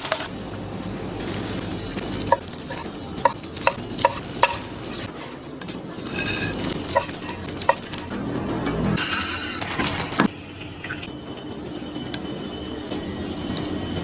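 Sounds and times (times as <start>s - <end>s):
food sizzling: 1.1s - 5.1s, 5.8s - 8.2s.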